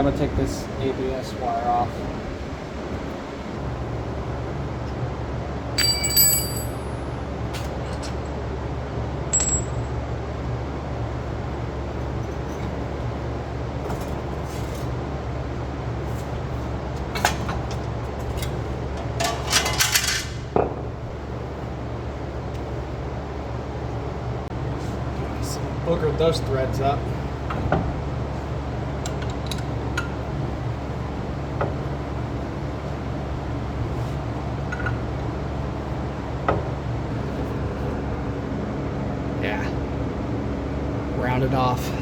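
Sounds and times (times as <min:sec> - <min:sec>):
metal parts clinking and rattling: 0:05.8 - 0:07.1, 0:09.3 - 0:10.0, 0:19.1 - 0:20.5
ringing metal clink: 0:05.8 - 0:07.1, 0:09.3 - 0:10.0
steady low hum: 0:20.6 - 0:42.0.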